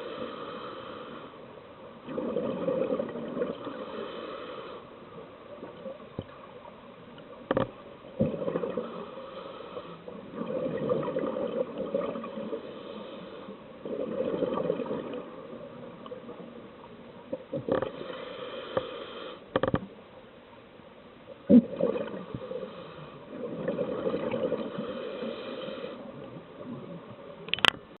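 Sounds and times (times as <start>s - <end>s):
exhaled bubbles gurgling: 2.0s - 3.9s, 8.1s - 9.1s, 10.1s - 12.6s, 13.7s - 18.2s, 21.4s - 27.5s.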